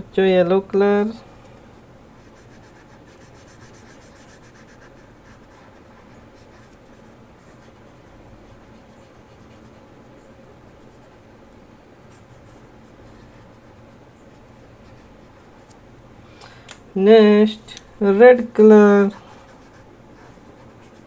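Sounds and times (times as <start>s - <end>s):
steady low hum: 0.0s - 21.0s
colouring tool scratching paper: 2.2s - 10.1s, 19.1s - 21.0s.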